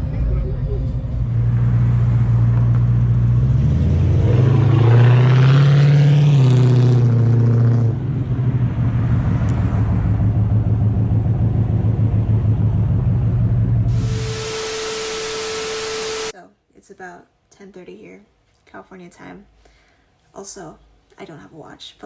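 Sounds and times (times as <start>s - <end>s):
car engine revving and idling: 0.0s - 16.3s.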